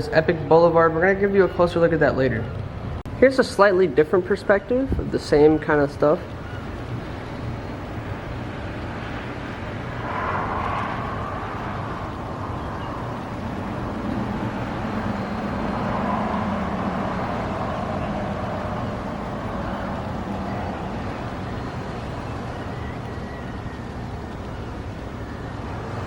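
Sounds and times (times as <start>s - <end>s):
vehicles passing: 0.0s - 26.0s
low engine hum: 6.2s - 26.0s.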